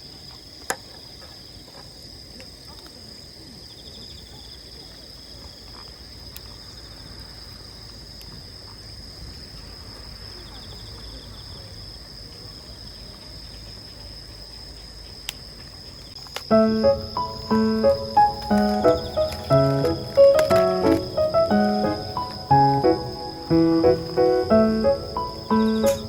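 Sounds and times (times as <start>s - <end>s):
insects trilling: 0.0s - 26.0s
low pulsed insect trills: 0.0s - 26.0s.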